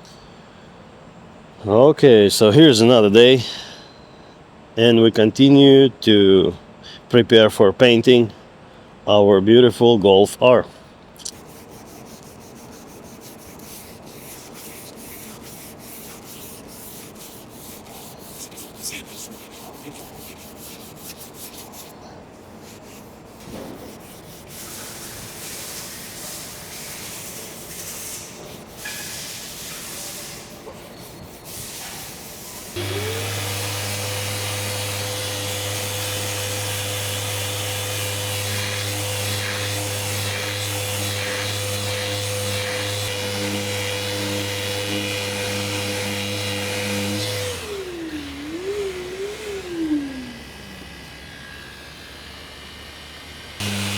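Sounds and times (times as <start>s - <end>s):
hand sanding paint: 11.2s - 50.4s, 53.6s - 53.9s
power sander whining: 32.6s - 53.9s.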